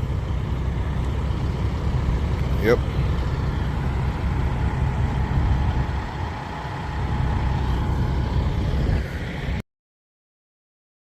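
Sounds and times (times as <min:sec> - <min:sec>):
diesel truck engine rumbling: 0:00.0 - 0:09.6.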